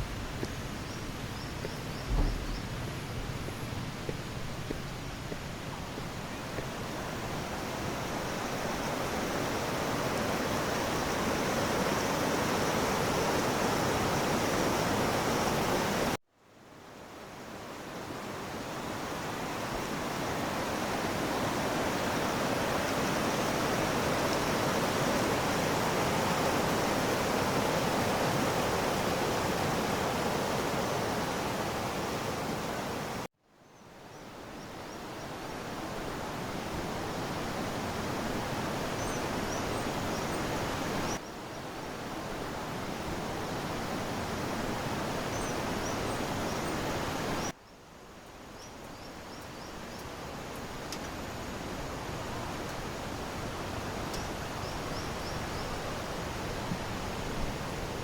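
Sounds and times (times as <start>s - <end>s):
fast-flowing river rushing: 5.0s - 16.2s, 17.4s - 33.3s.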